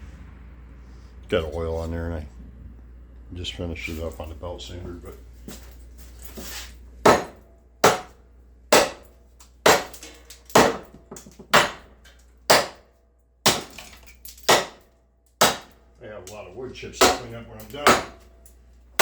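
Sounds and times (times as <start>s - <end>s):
cleaver chopping into wood: 7.1s - 9.1s, 9.7s - 11.9s, 12.5s - 12.8s, 13.5s - 14.8s, 15.4s - 15.8s, 17.0s - 18.2s.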